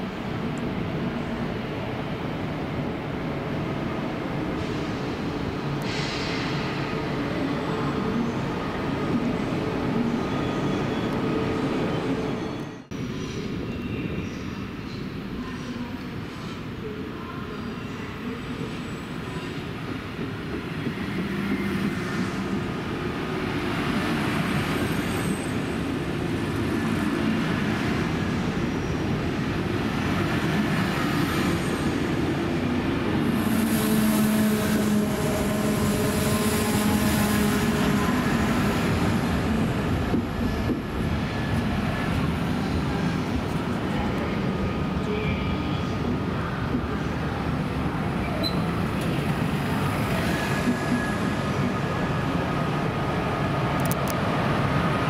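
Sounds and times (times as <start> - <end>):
electric train rumbling: 18.2 - 55.0.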